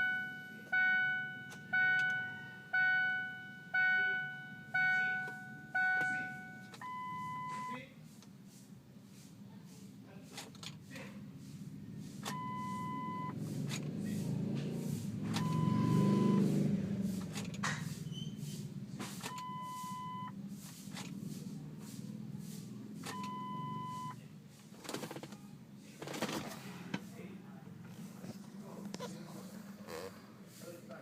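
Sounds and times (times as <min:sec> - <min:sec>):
vehicle warning chime beeps: 0:00.0 - 0:07.9, 0:12.2 - 0:13.4, 0:15.4 - 0:16.6, 0:19.2 - 0:20.4, 0:23.0 - 0:24.2.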